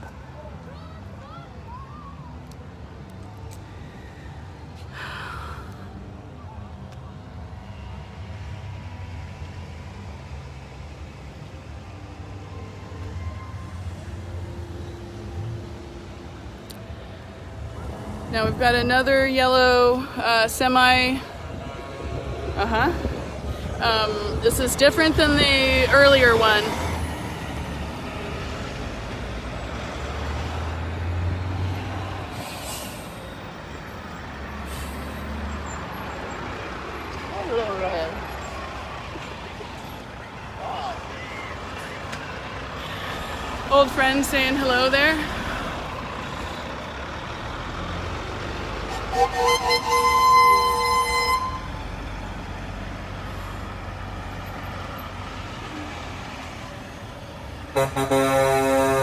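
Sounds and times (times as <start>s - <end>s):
truck diesel engine rumbling: 13.6s - 59.0s
air brakes hissing: 32.3s - 33.4s, 34.5s - 35.5s
vehicle horn honking: 48.9s - 51.8s, 57.7s - 59.0s.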